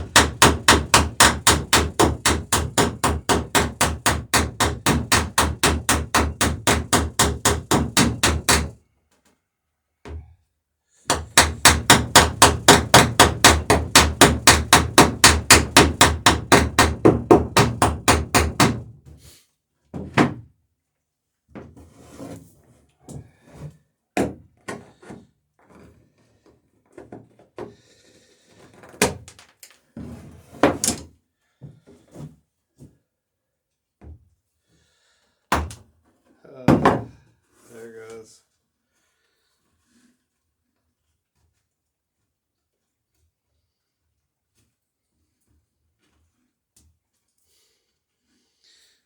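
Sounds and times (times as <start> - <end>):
rapid hammer blows on rivet: 0.0 - 8.7.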